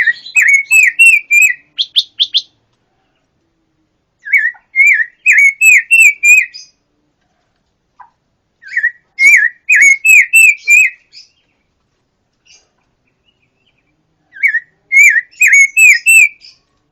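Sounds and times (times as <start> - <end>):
songbird whistling: 0.0 - 2.6, 4.2 - 6.8, 8.6 - 11.4, 13.2 - 16.6.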